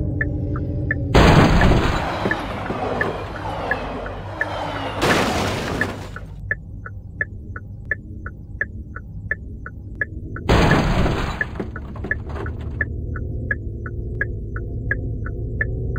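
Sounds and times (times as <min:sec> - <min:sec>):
low steady drone: 0:00.0 - 0:05.0, 0:06.3 - 0:11.2, 0:12.6 - 0:15.9.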